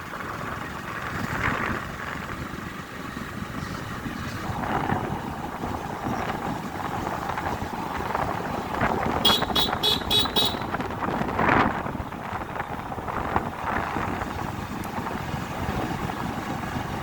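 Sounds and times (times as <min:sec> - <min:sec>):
road traffic: 0:00.0 - 0:17.0
vehicle horn short toots: 0:09.2 - 0:10.8.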